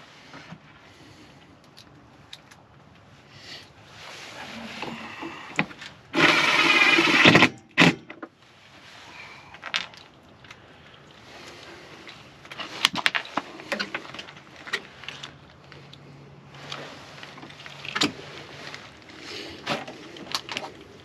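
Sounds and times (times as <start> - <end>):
power drill running: 6.2 - 7.5.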